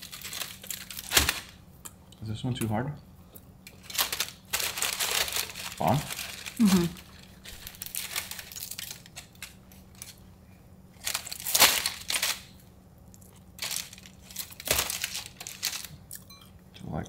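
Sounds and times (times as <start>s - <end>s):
crunchy pork rinds being chewed: 13.0s - 17.0s.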